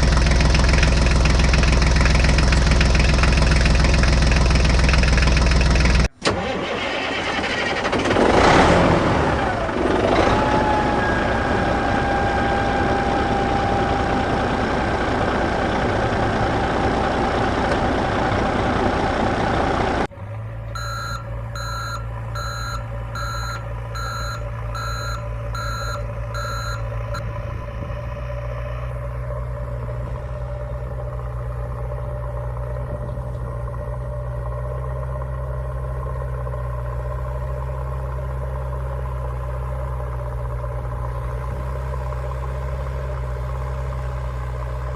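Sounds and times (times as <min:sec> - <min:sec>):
vehicle engine running loudly: 0:00.0 - 0:06.1, 0:08.0 - 0:44.9
engine idling: 0:00.0 - 0:44.9
reversing alarm beeping: 0:20.7 - 0:27.3.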